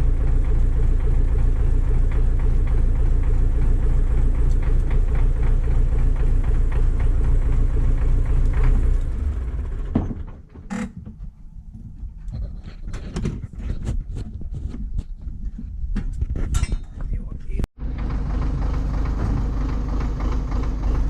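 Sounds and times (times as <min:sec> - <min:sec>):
diesel tractor engine running: 0:00.0 - 0:12.4, 0:17.8 - 0:21.0
light metal clanks: 0:16.0 - 0:17.2.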